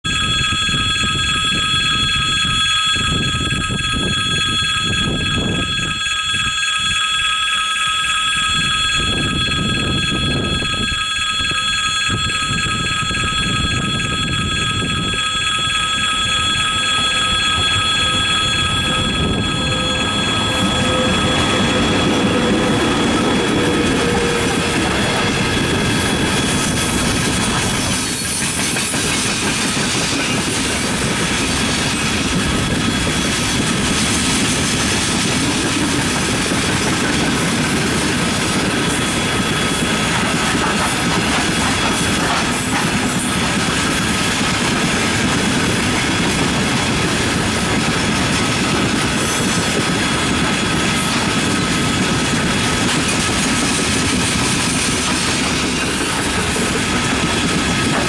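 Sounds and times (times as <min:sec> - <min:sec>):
thin high tone: 0:00.0 - 0:28.6
freight train wheels rumbling: 0:00.1 - 0:58.0.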